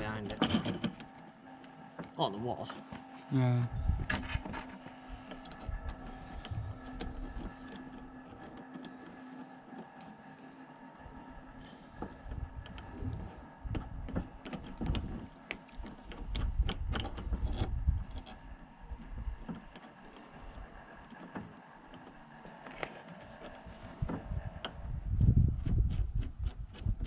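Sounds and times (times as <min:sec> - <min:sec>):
metallic clicks and clanks of tools: 0:00.2 - 0:01.1.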